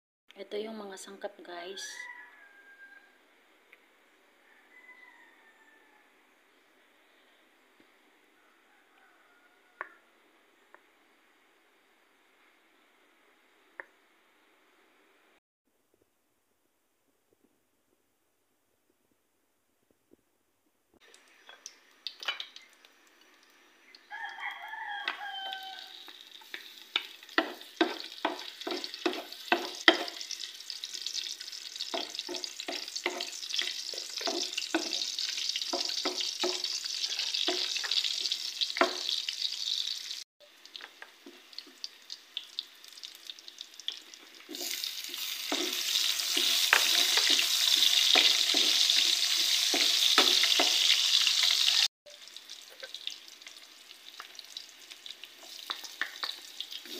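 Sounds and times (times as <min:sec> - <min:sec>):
rooster crowing: 0:01.7 - 0:03.3, 0:04.4 - 0:06.2, 0:08.4 - 0:10.2, 0:24.0 - 0:26.4, 0:36.8 - 0:38.2
garlic sizzling in hot oil: 0:21.0 - 0:56.9
utensil scraping wok: 0:25.1 - 0:40.2, 0:44.4 - 0:51.9.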